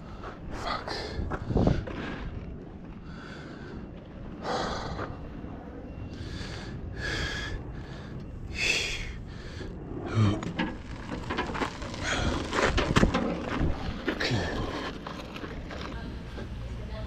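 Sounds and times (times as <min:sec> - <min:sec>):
man breathing hard: 0:00.0 - 0:02.4, 0:03.0 - 0:05.4, 0:06.1 - 0:10.4.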